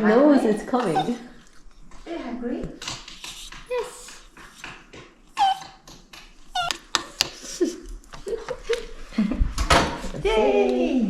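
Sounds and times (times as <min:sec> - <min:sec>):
dog whining: 0:00.0 - 0:01.6, 0:03.2 - 0:07.6.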